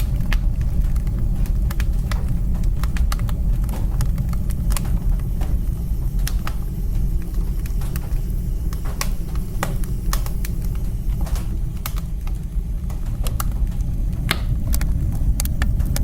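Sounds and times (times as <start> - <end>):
burning wood crackling and popping: 0.0 - 16.0
low rumble of flames: 0.0 - 16.0.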